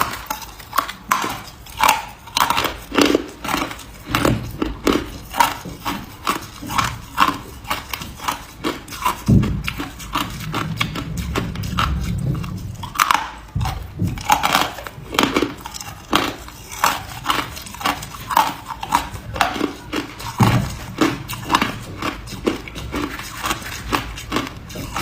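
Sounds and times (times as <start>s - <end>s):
person chewing ice: 0.0s - 25.0s.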